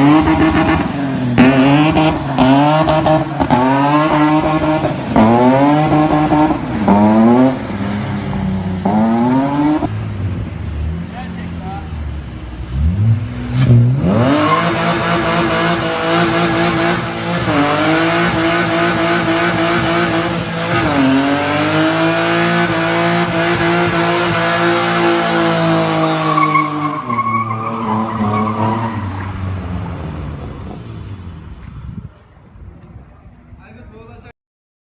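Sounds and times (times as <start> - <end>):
car engine revving high: 0.0 - 11.9, 12.6 - 30.8
tyres squealing in a burnout: 13.6 - 21.6, 22.2 - 29.4.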